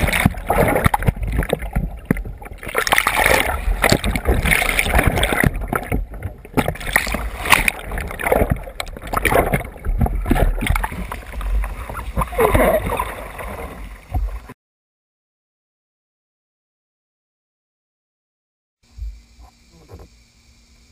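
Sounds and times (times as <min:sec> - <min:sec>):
water splashing around kayak: 0:00.0 - 0:14.6.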